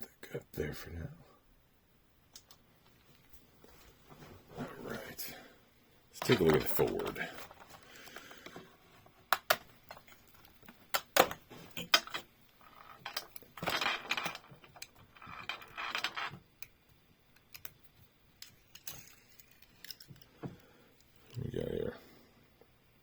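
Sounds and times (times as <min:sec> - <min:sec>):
toy car clicks and knocks: 0:09.3 - 0:10.2, 0:18.4 - 0:20.2.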